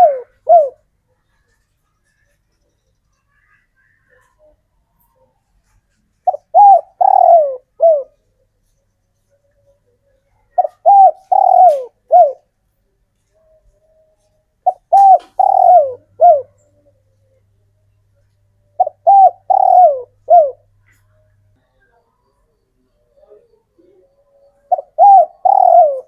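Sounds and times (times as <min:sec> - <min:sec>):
dove cooing: 0:00.0 - 0:00.9, 0:04.1 - 0:08.3, 0:09.6 - 0:12.5, 0:13.4 - 0:17.4, 0:18.6 - 0:21.2, 0:22.2 - 0:26.0.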